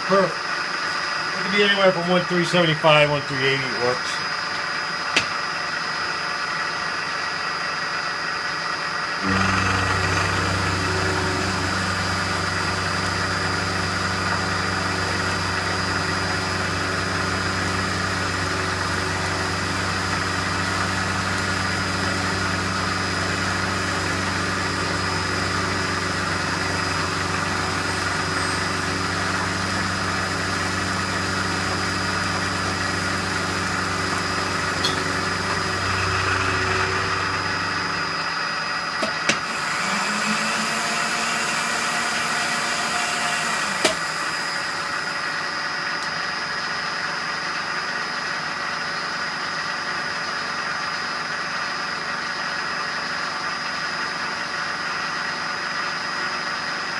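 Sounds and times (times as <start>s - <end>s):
electric motor humming: 9.2s - 45.2s.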